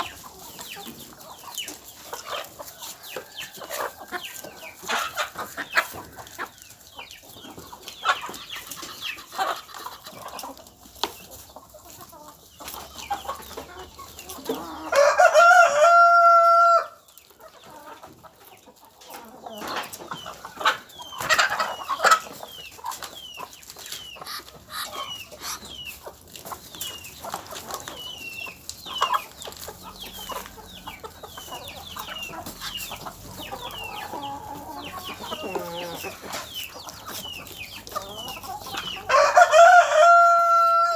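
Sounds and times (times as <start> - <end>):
chickens clucking: 0.0 - 40.9
rooster crowing: 14.8 - 17.0, 39.1 - 40.9.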